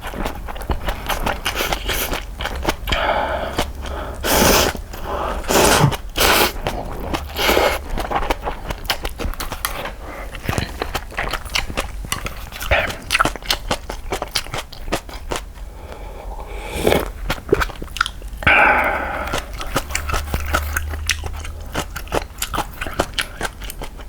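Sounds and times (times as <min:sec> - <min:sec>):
wet chewing: 0:00.0 - 0:24.0
noodle slurping: 0:00.9 - 0:08.7.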